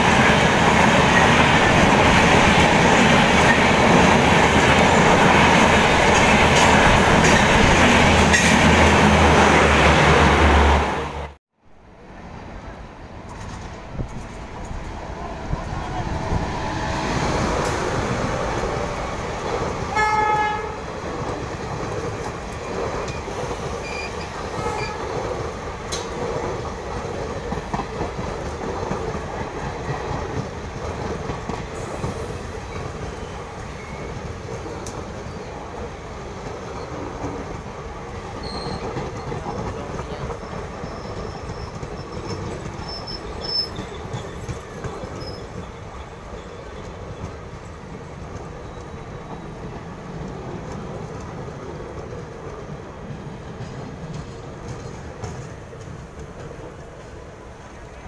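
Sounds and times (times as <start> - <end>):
train coaches rumbling past: 0.0 - 58.0
train horn blast: 19.9 - 20.9.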